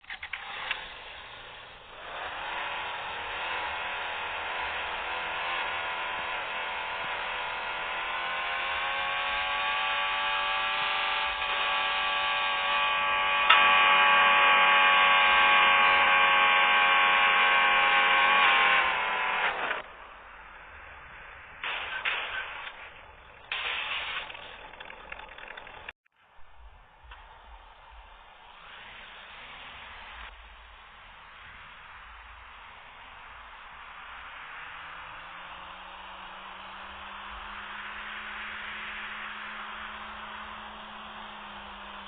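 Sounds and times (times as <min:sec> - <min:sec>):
small electric motor whirring: 0:00.1 - 0:19.8.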